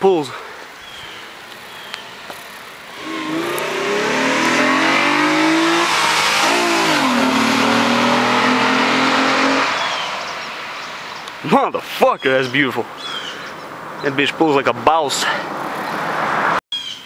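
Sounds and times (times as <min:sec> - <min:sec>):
car engine accelerating hard: 0:02.9 - 0:10.3.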